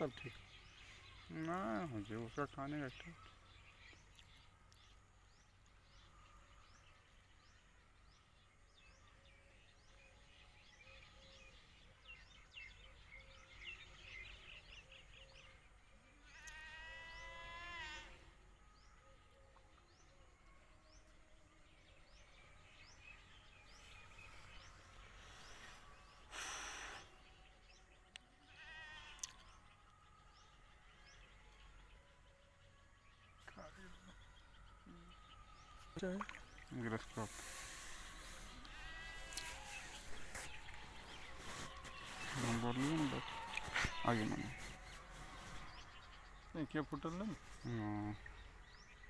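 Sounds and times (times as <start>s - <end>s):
small bird chirps: 33.4s - 49.0s.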